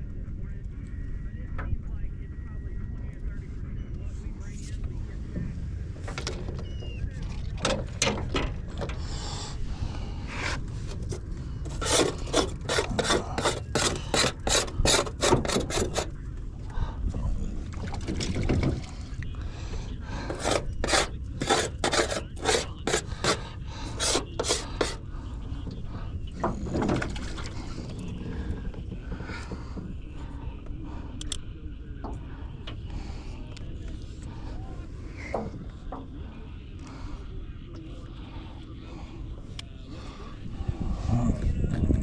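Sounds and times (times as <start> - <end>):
rasping scraping strokes: 10.0 - 16.2, 20.0 - 25.2.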